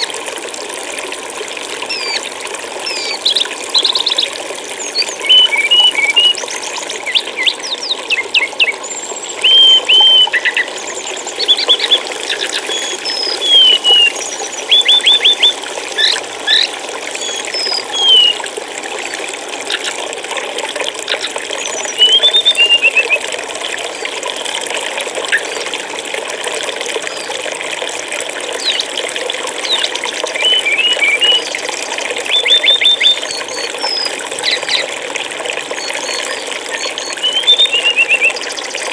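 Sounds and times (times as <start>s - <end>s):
water flowing: 0.0s - 38.9s
songbirds chirping: 2.9s - 18.4s.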